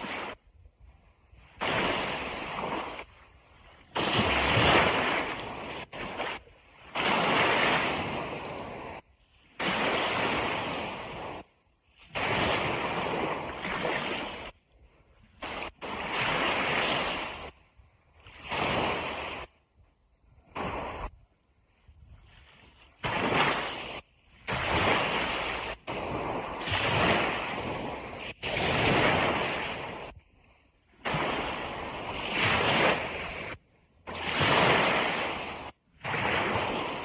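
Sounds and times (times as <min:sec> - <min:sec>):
ocean surf washing on beach: 0:00.0 - 0:00.5, 0:01.1 - 0:19.6, 0:20.2 - 0:37.0.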